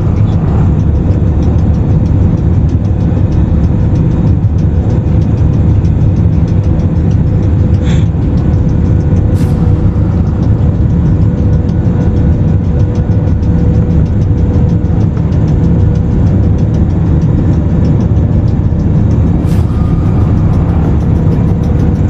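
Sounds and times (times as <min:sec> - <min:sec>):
airliner cabin rumble: 0:00.0 - 0:22.0
music with ticking beat: 0:00.0 - 0:22.0.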